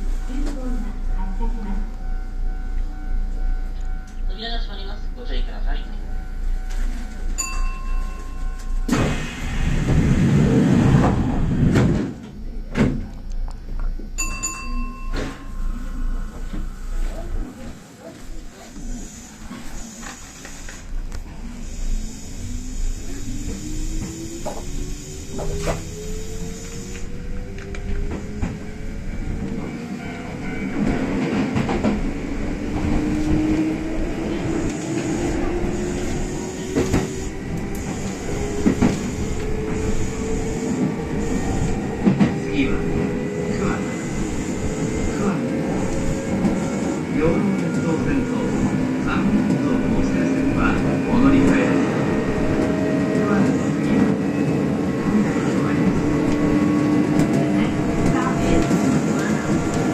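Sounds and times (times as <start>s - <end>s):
train doors rushing shut: 8.6s - 13.1s, 18.5s - 59.9s.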